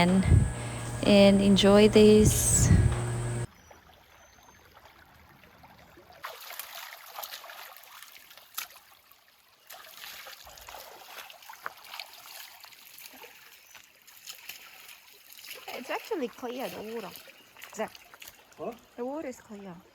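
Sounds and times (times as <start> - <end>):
creek water trickling over stones: 3.5 - 19.9.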